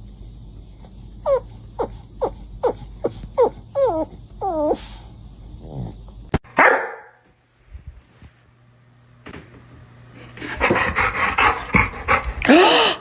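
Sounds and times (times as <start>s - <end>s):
dog yipping: 3.4s - 4.8s, 6.6s - 7.2s.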